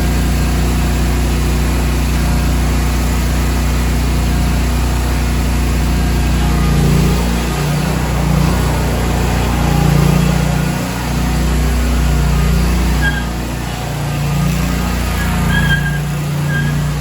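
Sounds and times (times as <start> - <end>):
mower engine running: 0.0 - 17.0.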